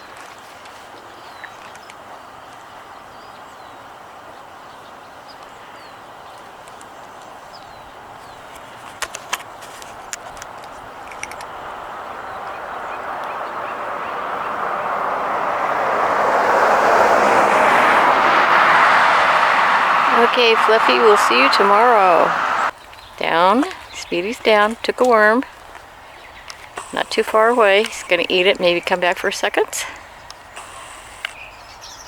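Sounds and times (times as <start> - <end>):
steady outdoor hum: 6.7 - 32.0
passing vehicle road noise: 8.0 - 32.0.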